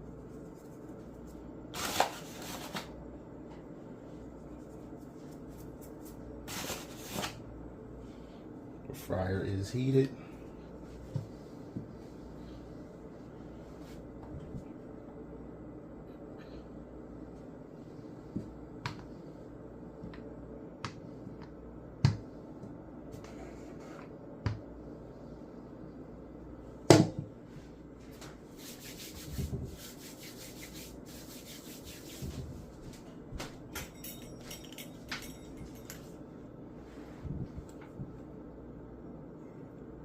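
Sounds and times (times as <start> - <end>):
dough worked on a counter: 0.0 - 40.0
scraping and rubbing: 28.6 - 32.7.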